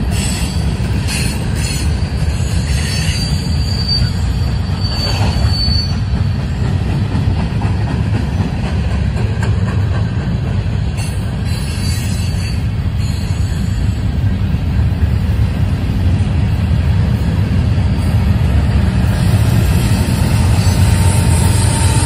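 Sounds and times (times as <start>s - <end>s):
train wheels rumbling on rail: 0.0s - 22.0s
high wheel squeal: 0.1s - 6.7s, 17.8s - 22.0s.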